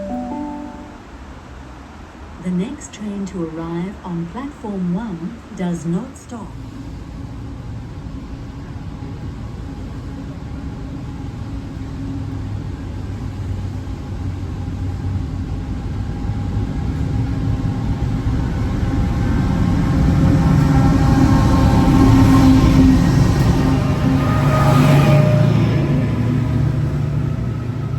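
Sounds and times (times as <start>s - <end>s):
faint high-pitched tones: 0.0s - 1.2s
train rumbling past: 6.5s - 27.9s.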